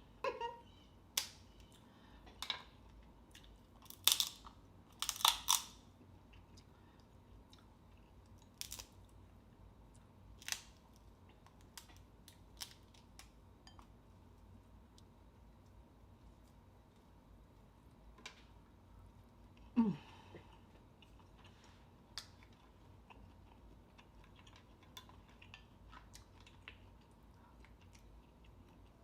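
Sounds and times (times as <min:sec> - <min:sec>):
crab shells cracking: 0:03.8 - 0:05.8, 0:08.5 - 0:09.0
quiet chewing: 0:06.0 - 0:09.2, 0:11.0 - 0:29.0.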